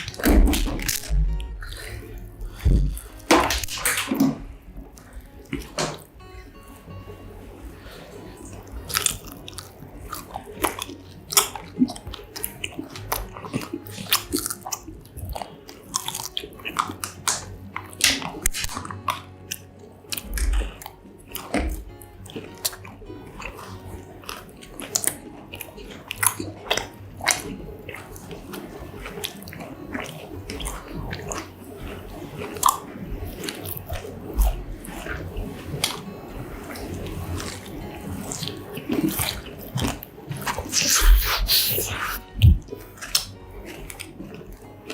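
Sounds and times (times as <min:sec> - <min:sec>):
wet mouth clicks: 0:40.7 - 0:42.6.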